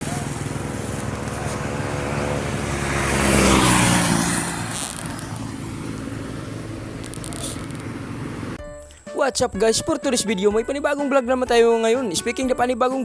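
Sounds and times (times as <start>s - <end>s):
road traffic noise: 0.0s - 8.6s
vehicle passing by: 0.0s - 8.6s.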